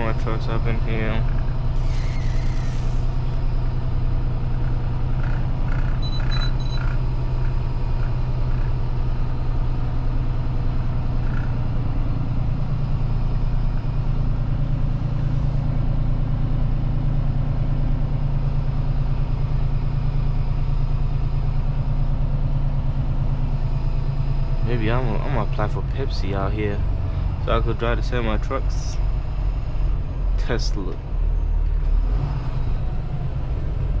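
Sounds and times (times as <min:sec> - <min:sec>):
truck diesel engine droning: 0:00.0 - 0:34.0
short high beeps: 0:06.0 - 0:06.8.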